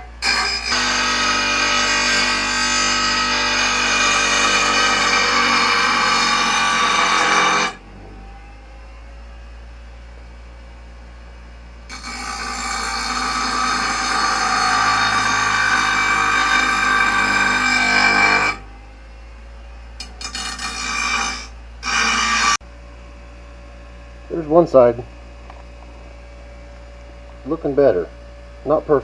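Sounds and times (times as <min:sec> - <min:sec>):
grinder grinding metal blade: 0:00.0 - 0:07.8, 0:11.9 - 0:18.6, 0:20.0 - 0:22.6
low hum: 0:05.9 - 0:29.0.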